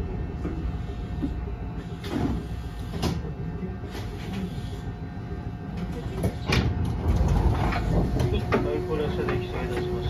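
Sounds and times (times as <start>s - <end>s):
train low rumble: 0.0s - 10.0s.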